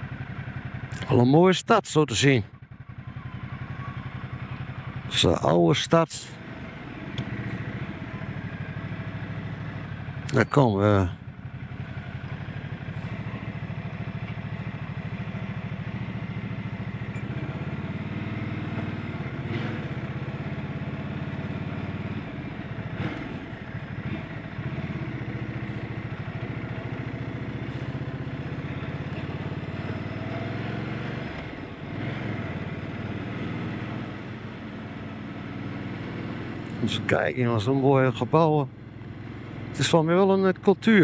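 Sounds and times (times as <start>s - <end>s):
motorcycle engine revving: 0.0s - 1.2s, 2.4s - 41.0s.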